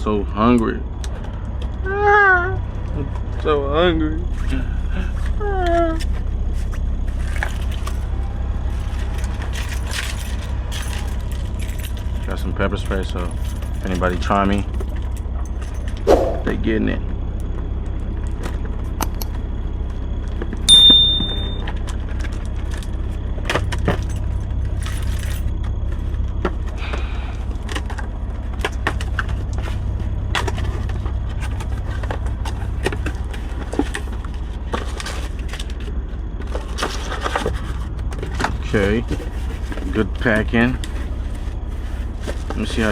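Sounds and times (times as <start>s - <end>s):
steady low hum: 0.0s - 42.9s
objects being handled clattering: 8.7s - 16.0s
high electronic beep: 20.7s - 21.6s.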